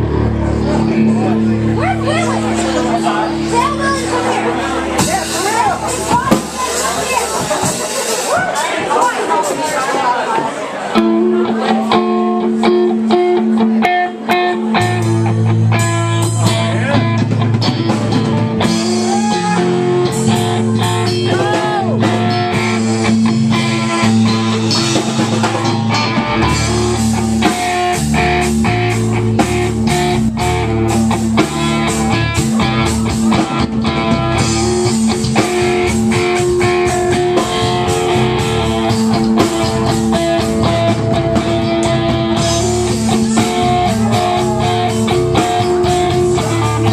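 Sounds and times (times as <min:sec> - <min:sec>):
electric guitar bending notes: 0:00.0 - 0:08.7, 0:10.8 - 0:46.9
bass guitar: 0:00.0 - 0:09.8, 0:10.9 - 0:46.9
drum kit: 0:00.0 - 0:46.9.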